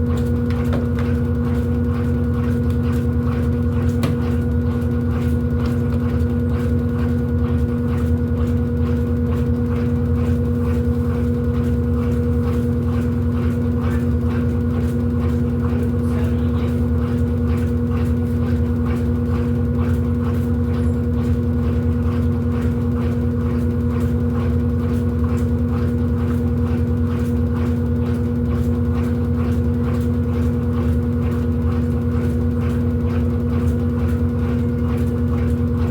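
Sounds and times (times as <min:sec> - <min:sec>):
washing machine motor hum: 0:00.0 - 0:35.9.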